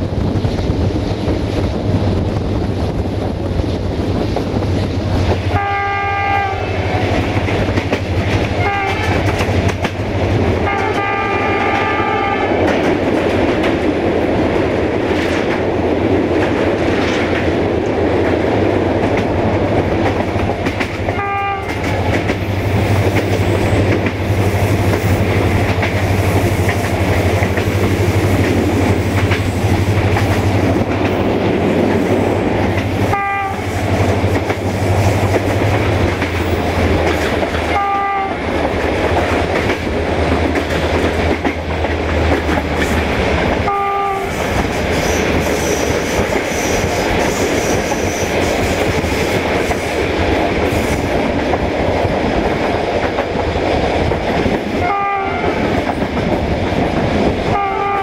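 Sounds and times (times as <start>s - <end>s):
diesel locomotive drone: 0.0s - 58.0s
train wheels on rails: 0.0s - 58.0s
train horn toots: 5.4s - 7.5s, 8.6s - 9.4s, 10.6s - 12.6s, 21.1s - 22.0s, 33.0s - 33.8s, 37.7s - 38.5s, 43.6s - 46.0s, 54.8s - 55.7s, 57.5s - 58.0s.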